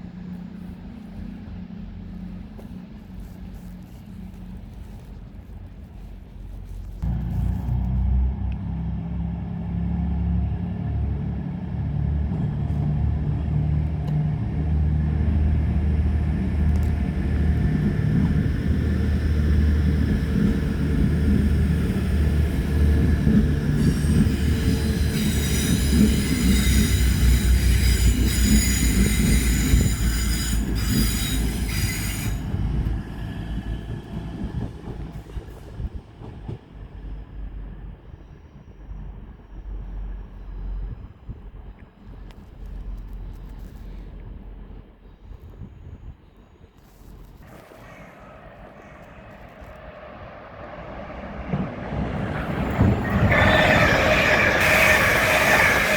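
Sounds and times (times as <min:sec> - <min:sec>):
train rumbling: 0:00.0 - 0:55.9
high-pitched train squeal: 0:16.8 - 0:36.0, 0:45.7 - 0:55.9.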